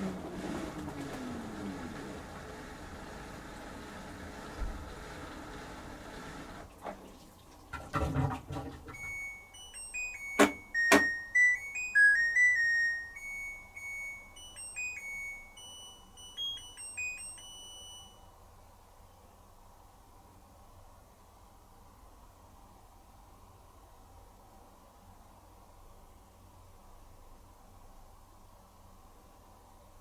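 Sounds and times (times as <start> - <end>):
washing machine running: 0.0 - 13.1
electronic beep melody: 9.0 - 18.2.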